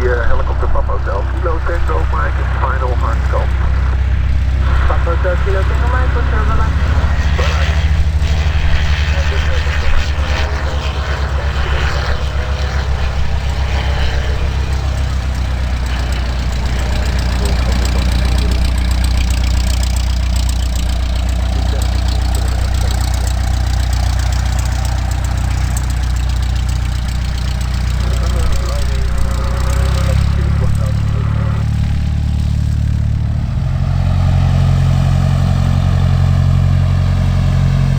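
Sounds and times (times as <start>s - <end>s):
propeller plane engine idling: 0.0s - 37.9s.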